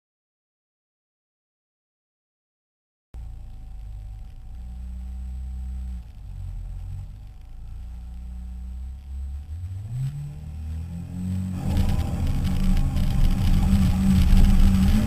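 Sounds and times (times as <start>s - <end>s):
rally car engine revving: 3.2s - 15.0s.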